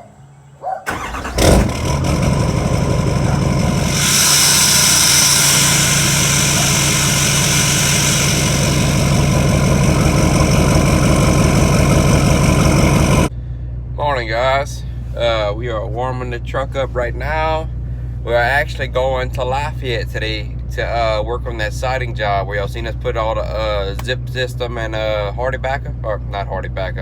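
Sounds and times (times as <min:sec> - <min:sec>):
truck engine starting and idling: 0:00.9 - 0:13.3
steady hiss: 0:02.7 - 0:13.3.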